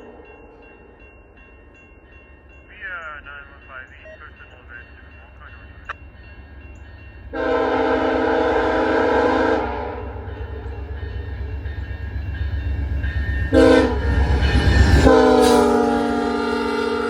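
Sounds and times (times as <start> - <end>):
train rumble and rush: 0.0 - 17.0
locomotive horn blasts: 7.3 - 10.1, 13.5 - 14.1, 15.1 - 17.0.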